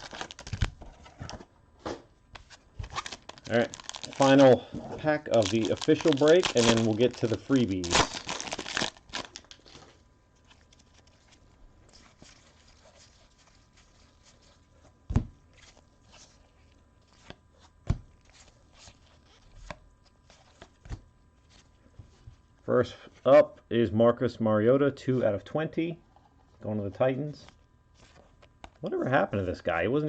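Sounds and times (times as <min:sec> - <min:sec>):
wrapper crinkling and tearing: 0:00.0 - 0:00.8, 0:02.5 - 0:14.8
cards handled: 0:02.3 - 0:13.5.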